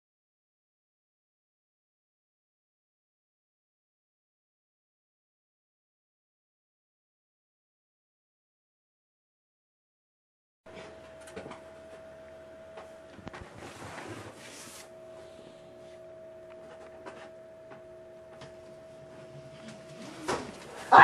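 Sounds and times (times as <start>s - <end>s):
steady hum: 10.7s - 21.0s.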